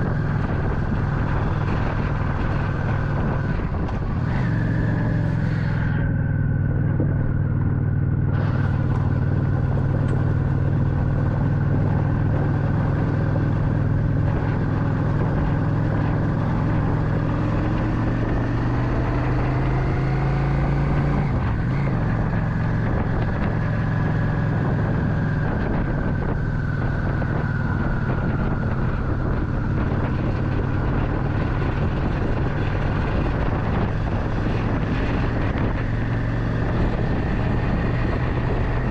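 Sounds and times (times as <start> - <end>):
motorcycle engine running: 0.0 - 38.9
road and wind noise: 0.0 - 38.9.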